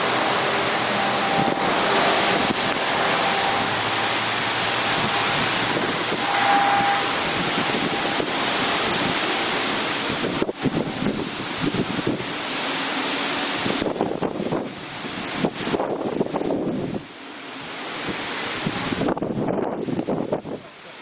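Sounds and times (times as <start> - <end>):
storm wind rushing: 0.0 - 20.6.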